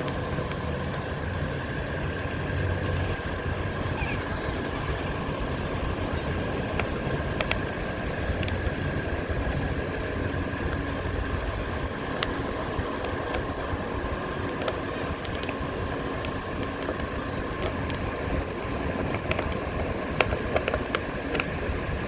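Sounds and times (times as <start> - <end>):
electric motor whine: 0.0 - 22.0
wind on microphone: 0.0 - 22.0.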